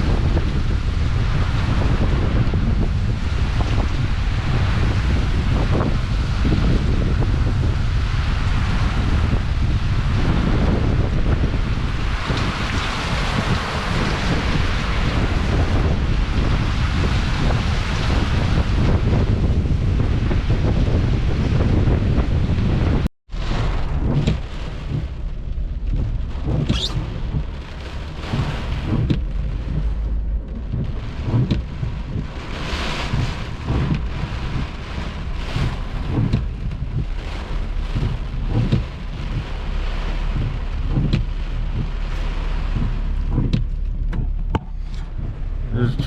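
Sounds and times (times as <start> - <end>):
gusting wind: 0.0 - 46.0
heavy rain: 0.0 - 46.0
wind buffeting microphone: 0.0 - 46.0.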